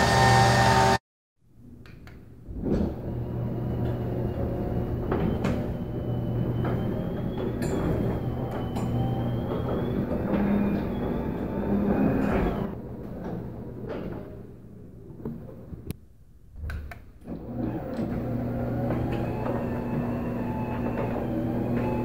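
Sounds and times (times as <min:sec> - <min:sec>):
garage door rumbling and rattling: 0:02.4 - 0:15.8, 0:17.3 - 0:22.0
garage door opener motor hum: 0:02.5 - 0:14.6, 0:17.2 - 0:22.0.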